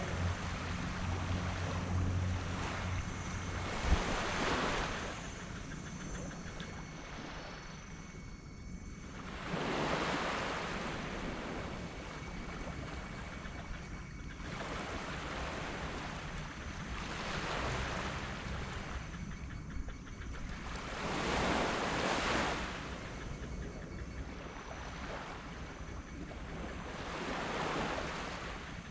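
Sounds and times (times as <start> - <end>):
small waves washing on sand: 0.0 - 5.4, 14.4 - 19.1, 20.4 - 23.2, 24.4 - 28.9.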